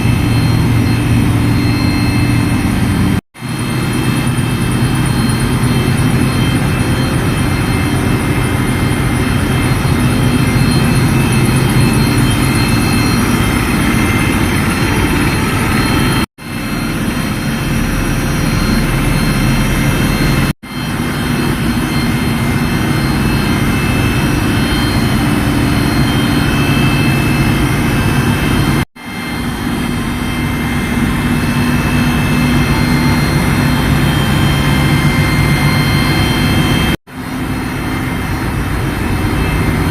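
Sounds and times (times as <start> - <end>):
engine room machinery drone: 0.0 - 39.9
steady machine tones: 0.0 - 39.9.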